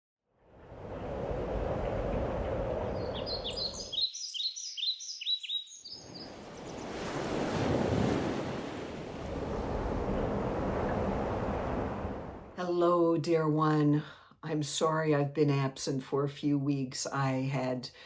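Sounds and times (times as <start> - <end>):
wind: 0.2 - 15.8
surf washing in: 0.5 - 3.8, 6.0 - 12.6
songbird chirping: 1.8 - 7.2.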